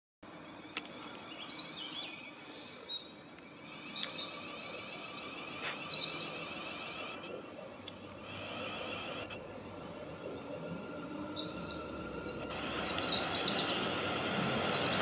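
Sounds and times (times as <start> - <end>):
songbirds chirping: 0.2 - 15.0
fast high bird trill: 3.6 - 7.2.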